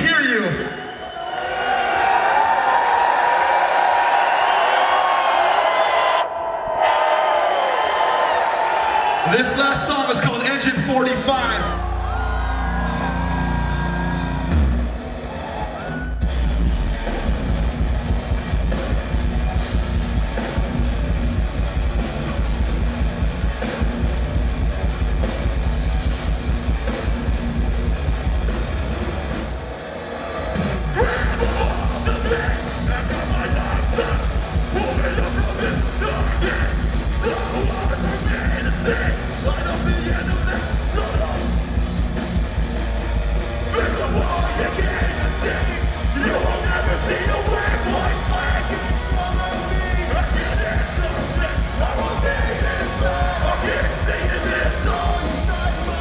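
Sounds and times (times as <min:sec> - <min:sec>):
live metal band playing: 0:09.4 - 0:56.0
shouted vocals: 0:31.0 - 0:41.5, 0:43.7 - 0:56.0.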